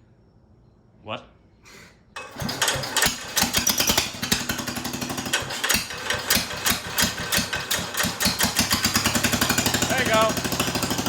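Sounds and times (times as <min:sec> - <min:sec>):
small tractor engine running: 0:02.2 - 0:11.0.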